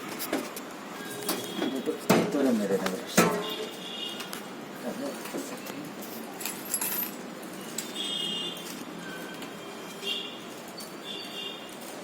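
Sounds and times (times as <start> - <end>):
tools and parts clinking: 6.3 - 8.0.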